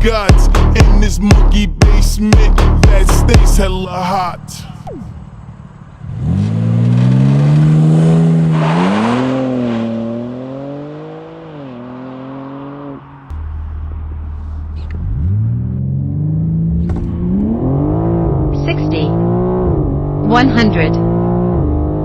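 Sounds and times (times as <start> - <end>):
car engine accelerating hard: 4.8 - 22.0.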